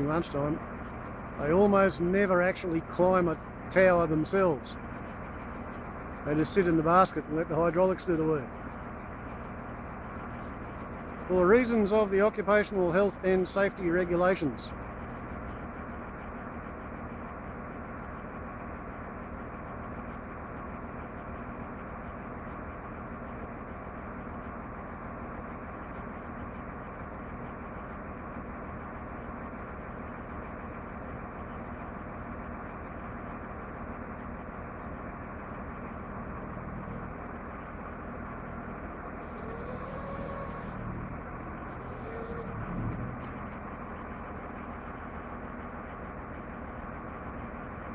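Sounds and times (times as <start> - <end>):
truck engine idling: 0.0 - 47.9.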